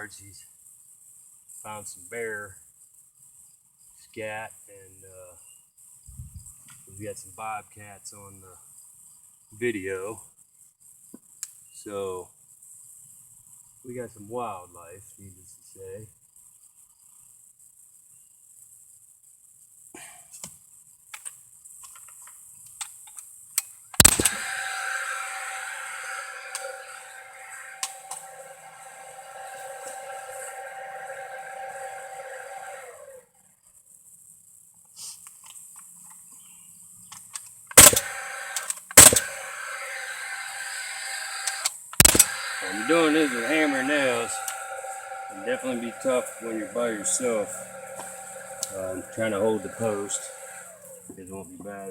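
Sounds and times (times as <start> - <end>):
nail gun firing: 24.0 - 26.9, 37.8 - 40.7, 41.4 - 45.3
nailer firing bang: 24.0 - 28.5, 37.8 - 38.3, 39.0 - 39.5, 42.0 - 50.7
fan whirring: 24.0 - 33.2, 37.8 - 51.1
crickets chirring: 42.0 - 51.1.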